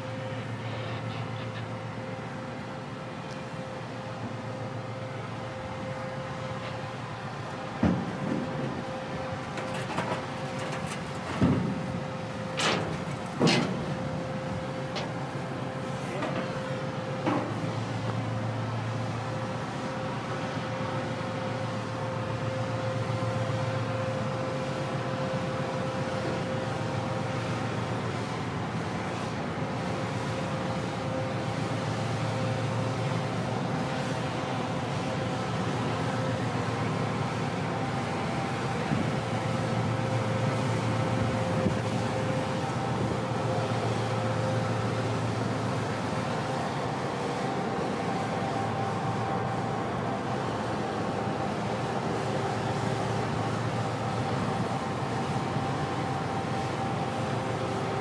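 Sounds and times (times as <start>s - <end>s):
constant machinery whine: 0.0s - 58.0s
ship machinery humming: 0.1s - 20.4s, 33.0s - 58.0s.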